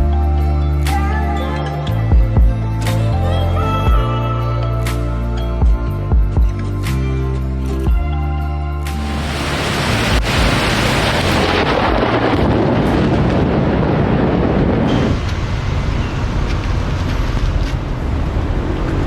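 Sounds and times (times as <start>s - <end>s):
deep low rumble: 9.0s - 19.0s
steady rain: 9.0s - 19.0s.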